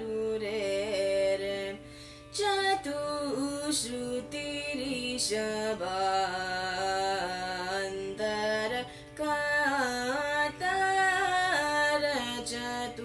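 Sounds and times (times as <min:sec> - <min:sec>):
young person singing: 0:00.0 - 0:13.0.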